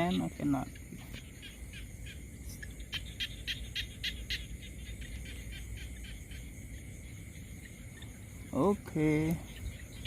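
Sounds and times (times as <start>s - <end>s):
high clicking animal chirps: 0.0s - 6.8s
low steady background rumble: 0.0s - 10.0s.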